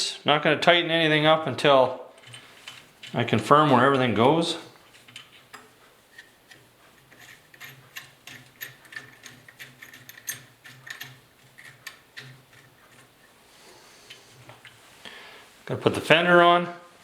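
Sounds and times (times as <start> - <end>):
small metal parts clicking: 2.2 - 3.4, 4.8 - 13.3.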